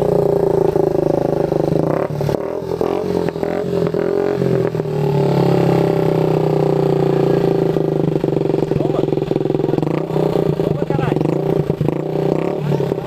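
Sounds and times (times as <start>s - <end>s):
small motorcycle engine revving: 0.0s - 13.0s.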